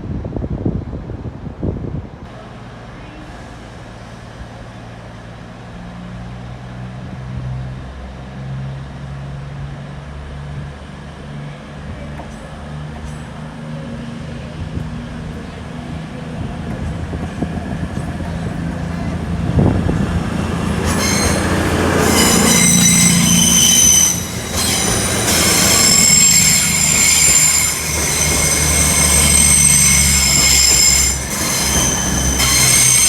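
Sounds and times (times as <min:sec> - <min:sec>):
wind buffeting microphone: 0:00.0 - 0:02.3, 0:14.5 - 0:22.4
train diesel engine humming: 0:02.2 - 0:33.0.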